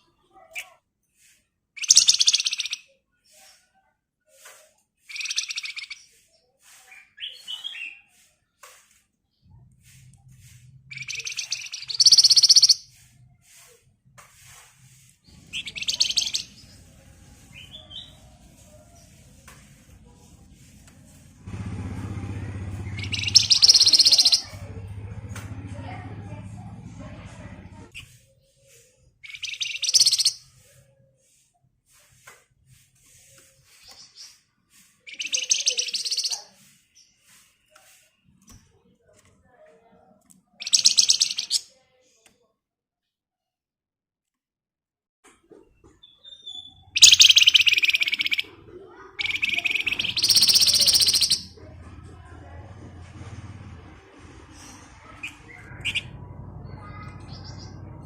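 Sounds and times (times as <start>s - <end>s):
songbird rattling trills: 1.8s - 2.8s, 10.9s - 12.9s, 15.5s - 16.8s, 22.7s - 24.6s, 29.2s - 30.4s, 35.1s - 36.3s, 40.6s - 41.6s, 46.5s - 48.4s, 49.2s - 51.5s
bird buzzing rattles: 22.9s - 24.4s.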